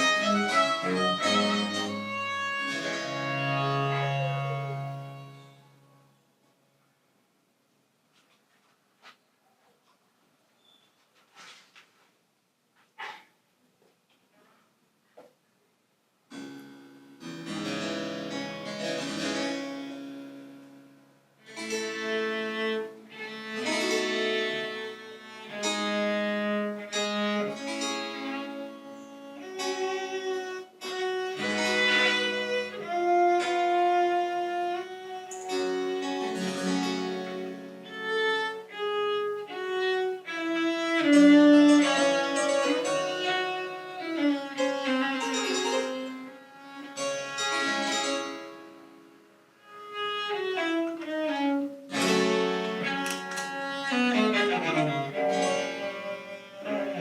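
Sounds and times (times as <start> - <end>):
baroque string ensemble playing: 0.0 - 5.6, 21.5 - 48.7, 49.8 - 57.0.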